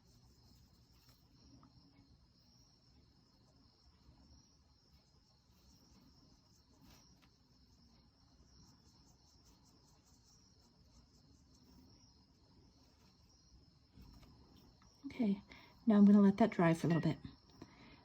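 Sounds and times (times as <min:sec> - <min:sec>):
cricket trill: 0:00.0 - 0:18.0.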